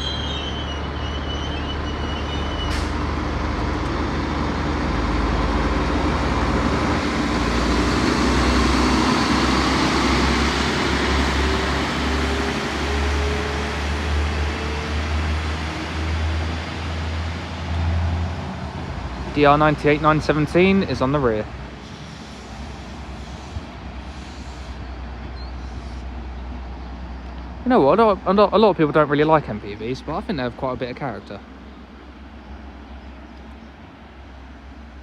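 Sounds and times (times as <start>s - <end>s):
diesel engines running: 0.0s - 35.0s.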